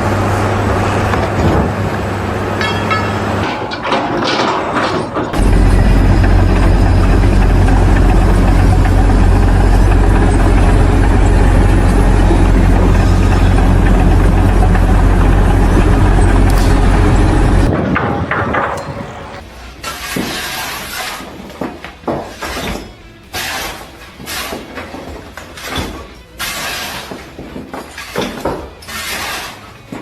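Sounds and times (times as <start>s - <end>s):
heavy machine engine humming: 0.0s - 19.4s
clatter and short knocks: 2.6s - 19.2s.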